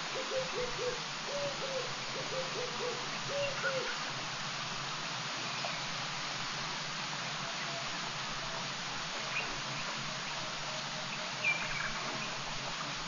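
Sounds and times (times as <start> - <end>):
steady hiss: 0.0 - 13.0
bird hooting: 0.1 - 4.0.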